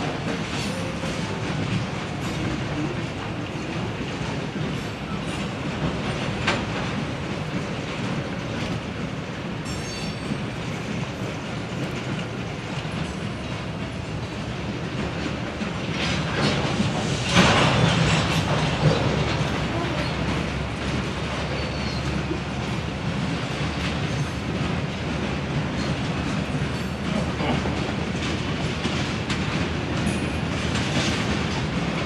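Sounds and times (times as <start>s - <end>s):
railroad cars rolling on track: 0.0s - 32.0s
high wheel squeal: 21.5s - 22.2s.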